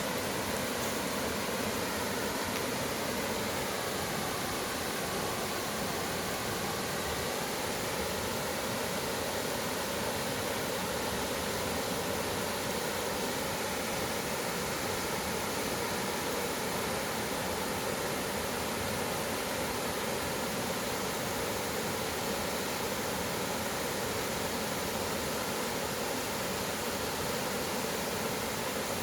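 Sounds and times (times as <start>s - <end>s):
stream flowing: 0.0s - 29.0s.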